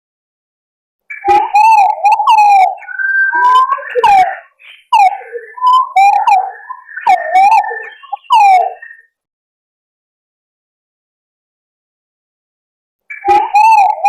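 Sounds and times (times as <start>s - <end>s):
pigeons whistling calls: 1.1s - 9.0s, 13.1s - 14.0s.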